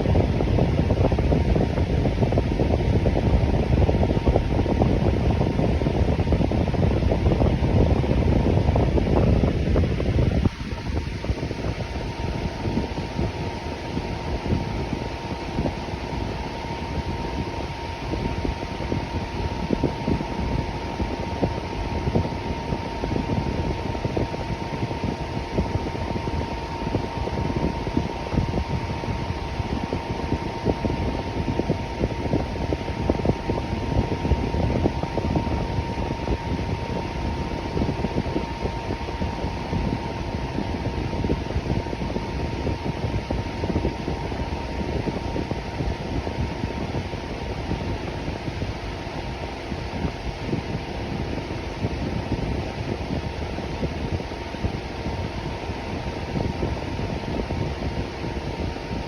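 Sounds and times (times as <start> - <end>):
electric fan air rush: 0.0 - 59.0
thin steady fan whine: 0.0 - 59.0.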